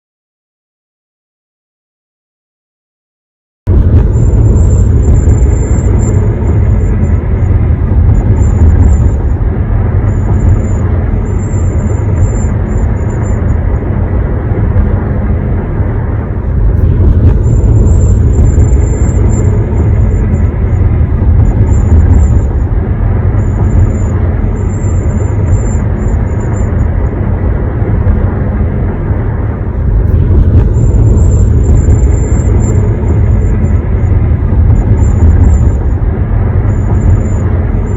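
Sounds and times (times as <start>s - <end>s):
road and engine drone: 3.7s - 37.9s
high-pitched whistle: 10.0s - 13.6s, 23.3s - 26.9s.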